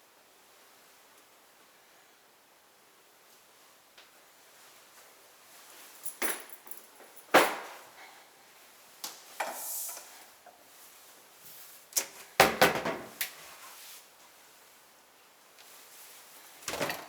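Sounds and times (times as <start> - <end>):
household fittings knocking and clattering: 12.4 - 13.2.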